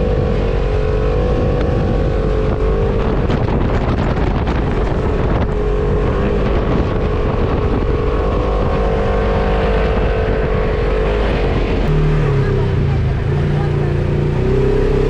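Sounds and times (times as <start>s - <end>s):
vehicle engine running hard: 0.0s - 15.0s
wind on microphone: 0.0s - 15.0s.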